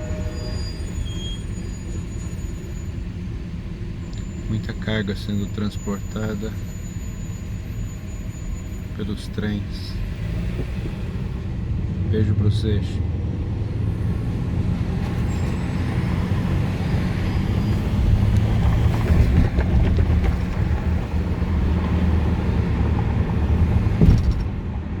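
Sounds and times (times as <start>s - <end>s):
freight train rumbling past: 0.0s - 4.0s, 9.7s - 25.0s
faint high squeal: 0.0s - 10.1s, 15.0s - 19.3s
wheels clattering on rails: 14.7s - 25.0s.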